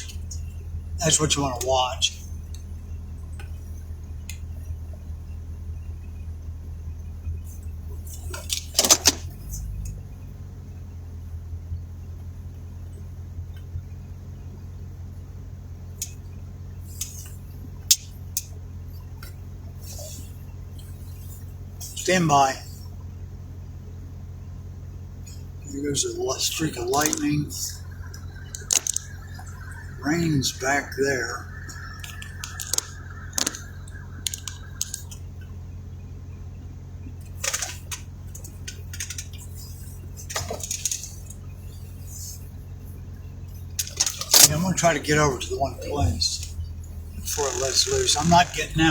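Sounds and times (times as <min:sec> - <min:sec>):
vehicle low hum: 0:00.0 - 0:48.9
high-pitched ticks: 0:26.9 - 0:35.6.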